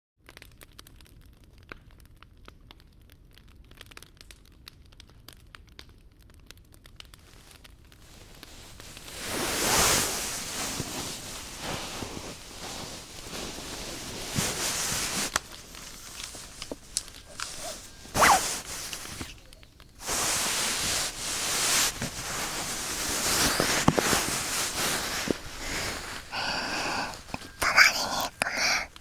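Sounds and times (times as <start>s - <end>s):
rustling on microphone ears: 7.3s - 29.0s.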